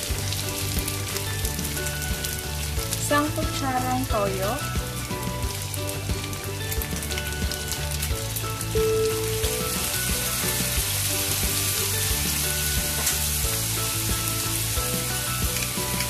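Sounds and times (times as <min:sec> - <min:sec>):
background music: 0:00.0 - 0:16.0
meat sizzling in a frying pan: 0:00.0 - 0:16.0.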